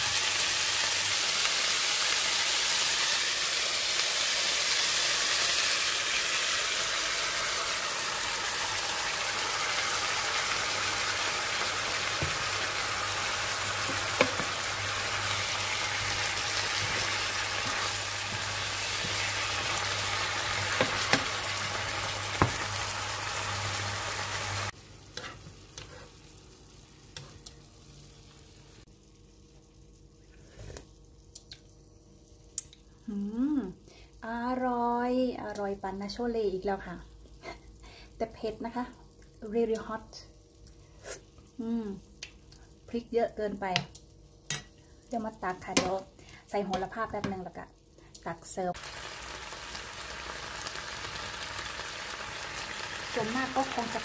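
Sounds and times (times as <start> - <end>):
food sizzling in a hot pan: 0.0 - 32.5, 48.6 - 54.0.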